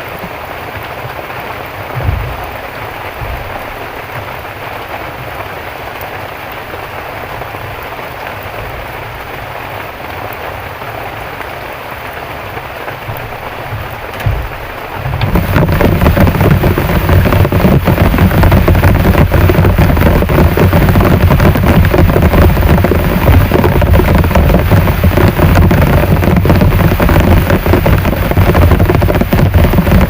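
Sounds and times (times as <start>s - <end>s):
heavy rain falling: 0.0s - 30.0s
low thump: 1.9s - 4.2s, 13.0s - 20.1s.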